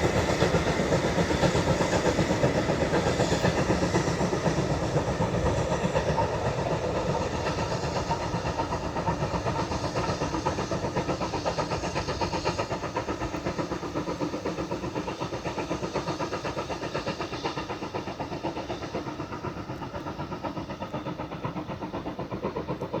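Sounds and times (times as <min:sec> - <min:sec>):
steam train rhythmic clatter: 0:00.0 - 0:23.0.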